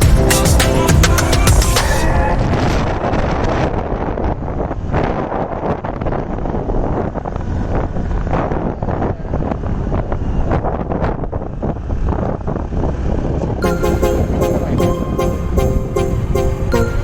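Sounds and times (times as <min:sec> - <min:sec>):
music: 0:00.0 - 0:02.1, 0:13.6 - 0:17.0.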